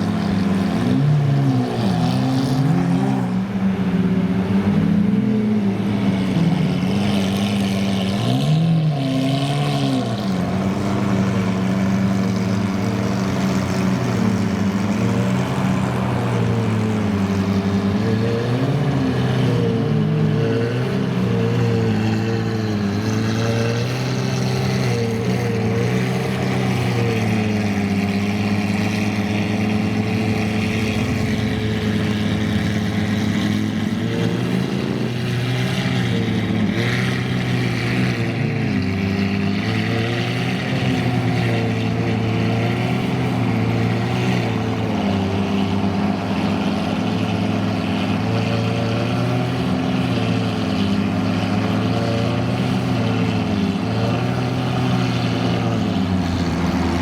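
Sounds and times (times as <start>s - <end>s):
car engine idling: 9.4s - 57.0s.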